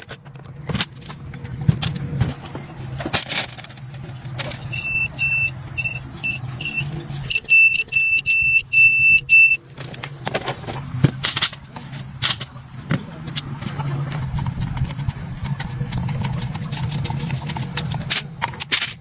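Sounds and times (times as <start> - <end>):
low hum: 0.2 - 19.0
short high electronic beeps: 4.7 - 9.6.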